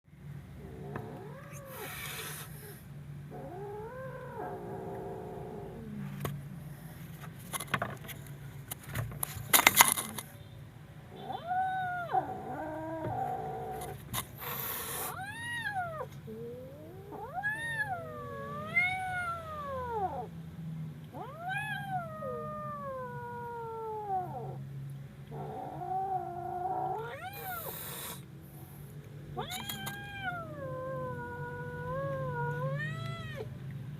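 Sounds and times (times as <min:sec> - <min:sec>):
kitten yowling: 0:00.6 - 0:02.5, 0:03.3 - 0:05.9, 0:11.2 - 0:13.9, 0:14.6 - 0:20.3, 0:21.1 - 0:24.6, 0:25.3 - 0:28.2, 0:29.4 - 0:33.5.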